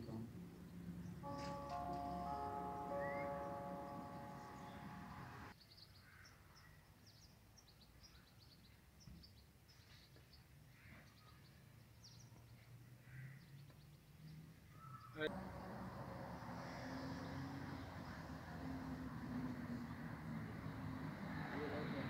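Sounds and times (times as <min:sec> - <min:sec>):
faint birds chirping: 0:00.0 - 0:22.0
held tones of background music: 0:01.0 - 0:05.5, 0:15.3 - 0:22.0.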